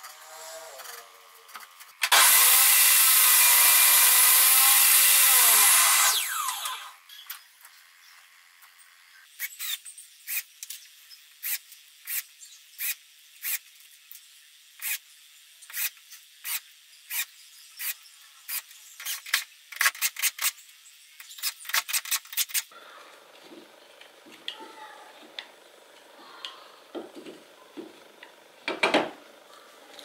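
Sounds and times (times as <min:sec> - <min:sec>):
screws being driven clicking: 0:09.4 - 0:10.8, 0:11.4 - 0:13.7, 0:14.8 - 0:15.0, 0:15.7 - 0:20.6, 0:21.2 - 0:22.7.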